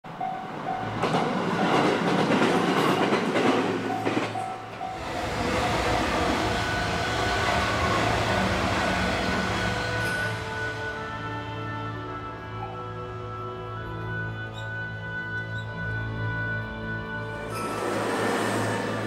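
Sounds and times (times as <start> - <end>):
train wheels clattering on rails: 0.7 - 10.6.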